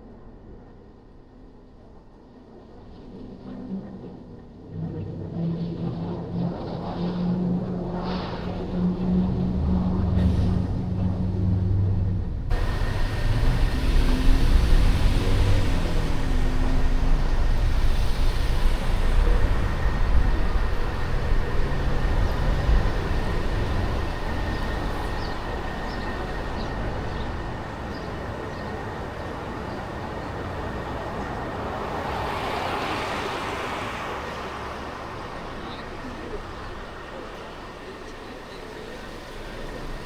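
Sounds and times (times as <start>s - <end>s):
car road rumble: 8.1s - 40.0s
traffic noise: 8.4s - 40.0s.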